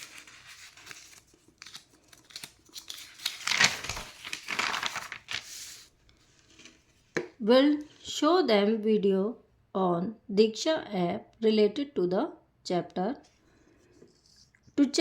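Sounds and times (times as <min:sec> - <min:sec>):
paper rustling and crinkling: 0:00.0 - 0:07.2.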